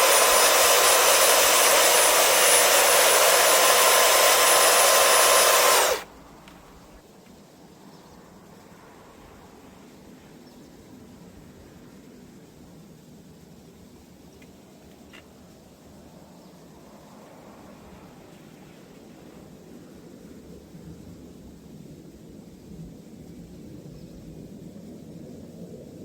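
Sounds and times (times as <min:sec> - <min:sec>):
power tool motor whining: 0:00.0 - 0:06.1.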